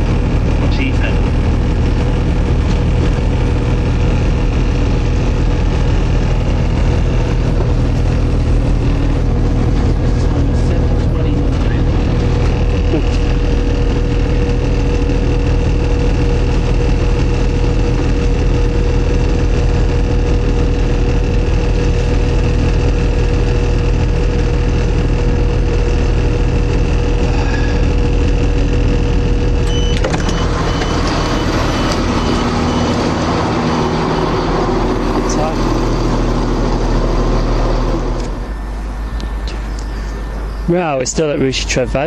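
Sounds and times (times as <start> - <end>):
train rumble and whine: 0.0 - 42.0
rapid high beeping: 29.4 - 35.7.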